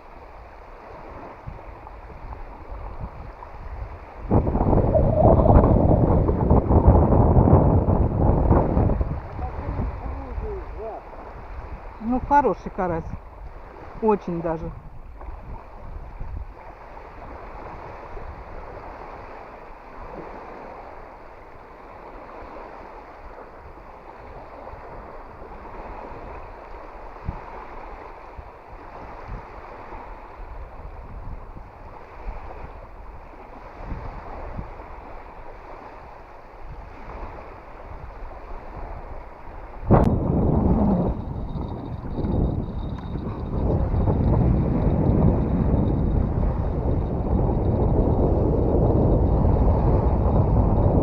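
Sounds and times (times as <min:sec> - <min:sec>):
water lapping and splashing: 0:00.0 - 0:50.8
wind gusting over the microphone: 0:00.0 - 0:51.0.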